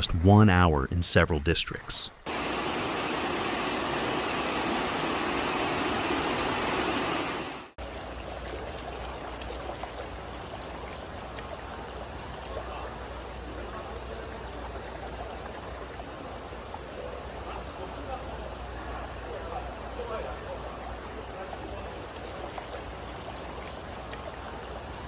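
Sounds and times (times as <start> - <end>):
heavy rain: 2.3 - 7.8
rushing floodwater: 2.3 - 25.0.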